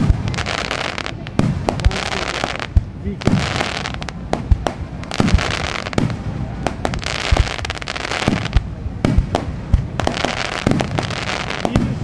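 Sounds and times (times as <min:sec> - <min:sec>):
fireworks deep booms: 0:00.0 - 0:12.0
fireworks sharp cracks: 0:00.0 - 0:12.0.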